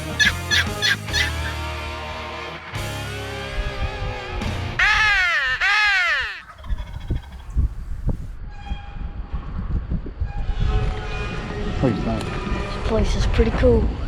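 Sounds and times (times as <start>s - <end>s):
crow cawing: 0.0s - 1.6s, 4.8s - 7.6s.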